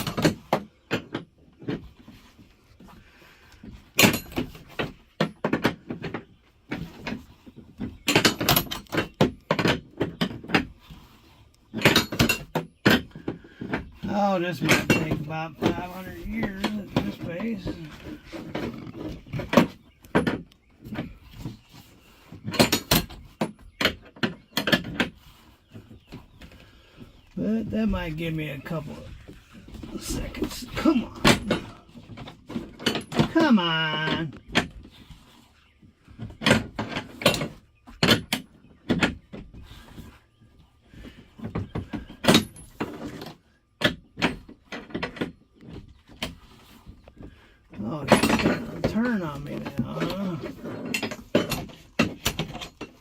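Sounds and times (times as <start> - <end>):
metallic knocks and clanks: 3.8 - 10.7, 11.7 - 21.1, 47.8 - 53.0.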